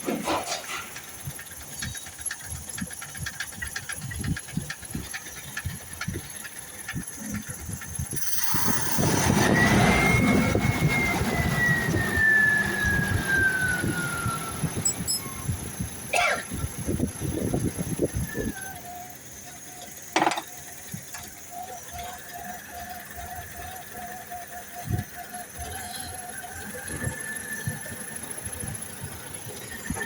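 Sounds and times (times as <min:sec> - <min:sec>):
engine rush with falling whine: 0:00.0 - 0:30.0
vehicle engine knocking: 0:00.9 - 0:08.4.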